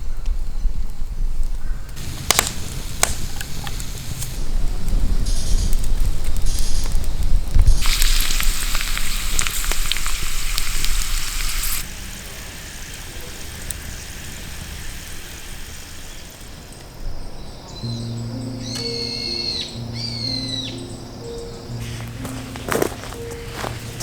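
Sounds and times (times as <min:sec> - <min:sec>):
food sizzling in a pan: 0:07.6 - 0:16.8, 0:21.8 - 0:24.0.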